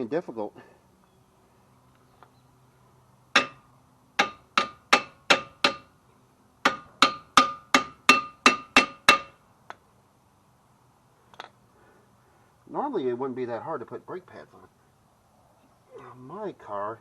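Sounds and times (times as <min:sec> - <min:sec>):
hammer striking metal: 0:03.4 - 0:03.6, 0:04.2 - 0:05.9, 0:06.6 - 0:09.4.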